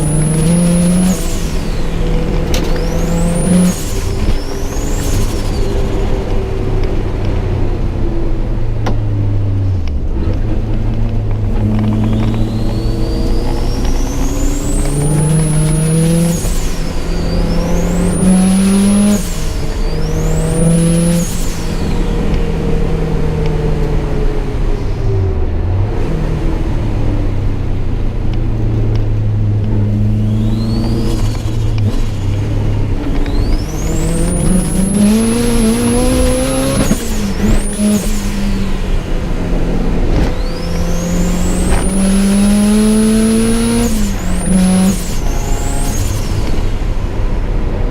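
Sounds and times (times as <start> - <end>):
high whine: 0.0 - 7.2, 29.7 - 47.0
car engine revving: 0.0 - 47.9.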